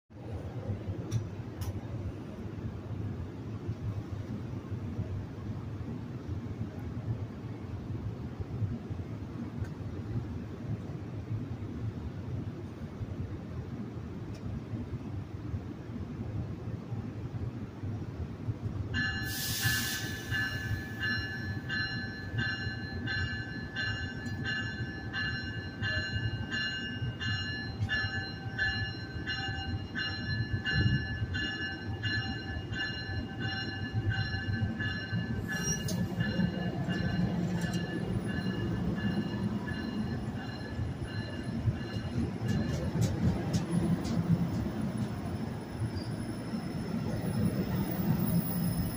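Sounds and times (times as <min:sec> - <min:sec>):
train bell ringing: 0:19.0 - 0:45.0
train pulling out: 0:19.0 - 0:48.9
air hiss: 0:19.3 - 0:20.8.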